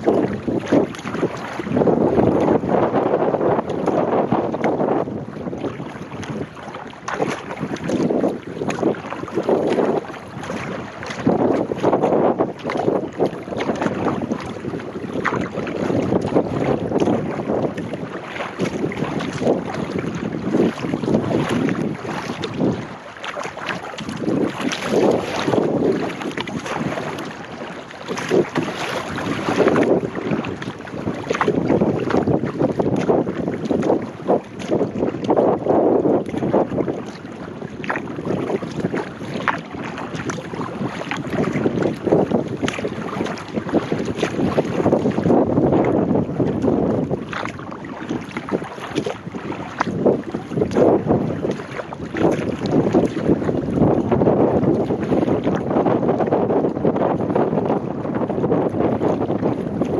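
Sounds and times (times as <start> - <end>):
paddle strokes splashing water: 0.0 - 59.9
water swishing around hull: 0.0 - 59.9
wind buffeting microphone: 0.0 - 59.9.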